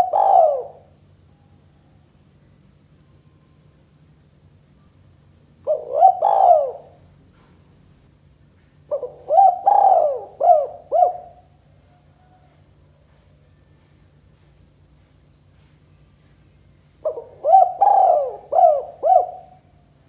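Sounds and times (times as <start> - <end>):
dove cooing: 0.0 - 0.9, 5.6 - 7.5, 8.9 - 11.4, 17.0 - 19.7.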